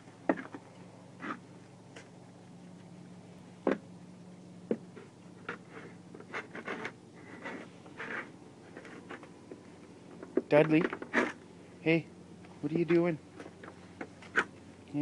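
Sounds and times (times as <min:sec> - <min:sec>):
cone and paws scraping steps: 0:00.0 - 0:02.9, 0:04.7 - 0:11.5, 0:12.4 - 0:14.7.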